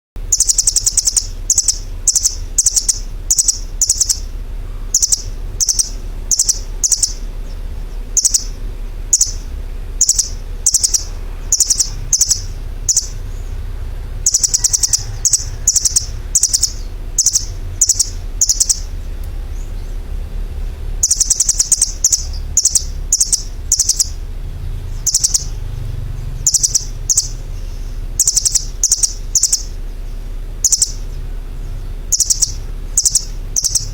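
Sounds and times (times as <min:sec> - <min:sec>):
bird chirping: 0:00.2 - 0:33.9
steady low hum: 0:00.2 - 0:33.9.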